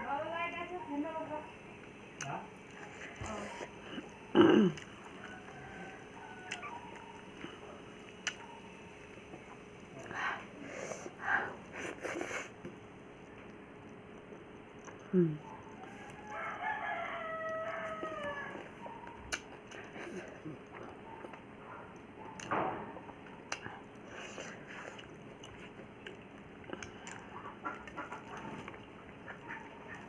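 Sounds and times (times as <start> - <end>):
rooster crowing: 5.0 - 7.6, 15.8 - 19.0.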